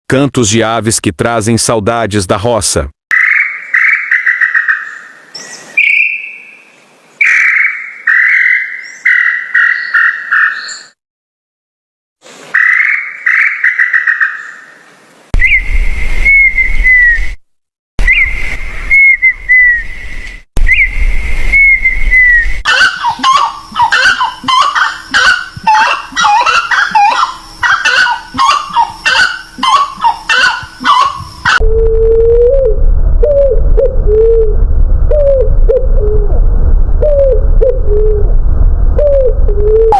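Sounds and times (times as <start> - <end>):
slurred whistled bird phrases: 3.1 - 6.6, 18.0 - 19.9
chorus of birds chirping: 3.1 - 11.0, 12.6 - 14.8, 22.2 - 31.6
whistled bird notes: 3.1 - 11.0, 15.4 - 17.4, 18.0 - 31.6
low repeated hoots: 21.8 - 36.4.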